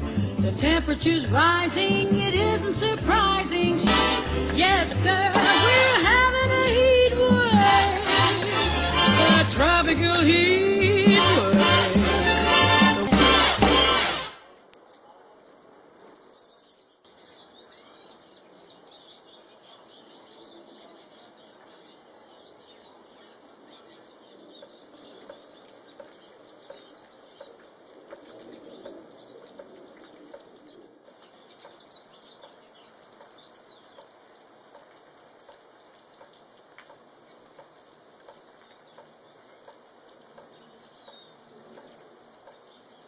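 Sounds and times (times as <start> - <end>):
birds chirping and twittering: 13.8 - 43.0
faint hiss of water: 17.1 - 43.0.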